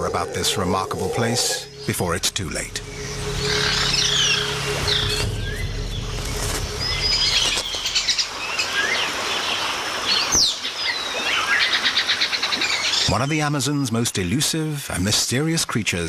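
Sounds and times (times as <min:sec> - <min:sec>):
birds chirping and trilling: 0:00.0 - 0:14.7.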